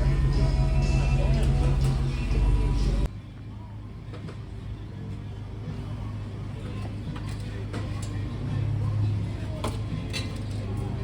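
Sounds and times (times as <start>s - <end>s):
car engine idling: 0.0s - 3.1s.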